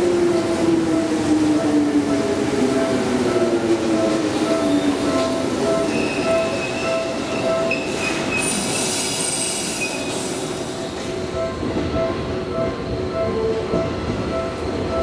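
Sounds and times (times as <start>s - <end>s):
electric train braking: 3.0s - 12.3s
high wheel and brake squeal: 5.9s - 10.4s.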